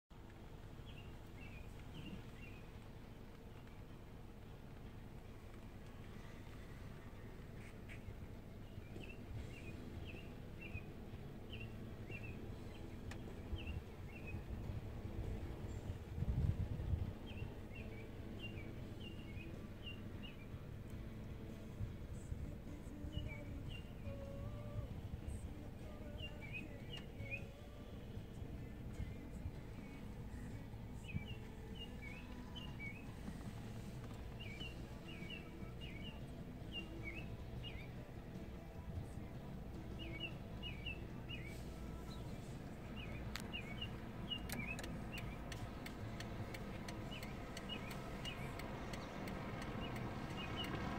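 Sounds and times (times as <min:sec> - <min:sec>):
songbird chirping: 0:00.1 - 0:50.9
low rumble: 0:00.2 - 0:50.9
sharp tick: 0:44.4 - 0:50.8.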